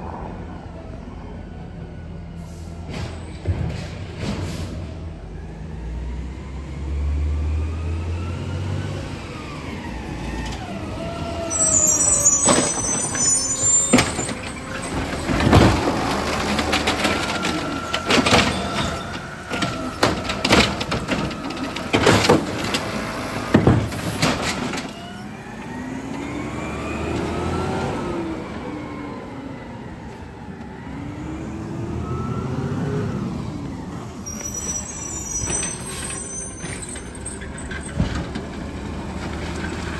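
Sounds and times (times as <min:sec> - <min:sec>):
garbage truck engine and hydraulics: 0:00.0 - 0:39.9
loud bangs and clatter: 0:13.9 - 0:24.9.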